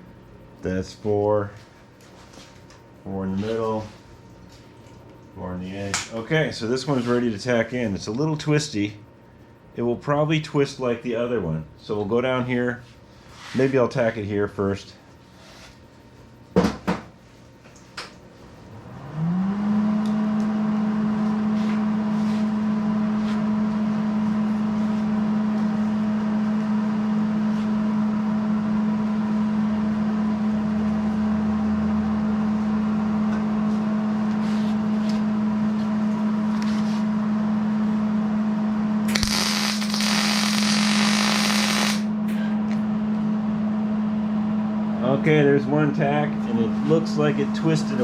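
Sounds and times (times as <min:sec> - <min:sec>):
machine hum: 0:00.0 - 0:48.0
welding arc crackling: 0:39.1 - 0:42.1.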